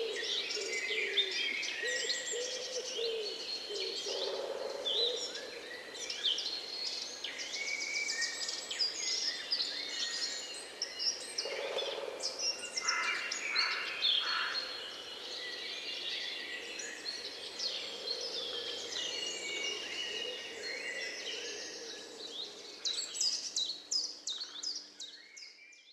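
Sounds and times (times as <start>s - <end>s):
songbirds singing and chirping: 0.0s - 25.9s.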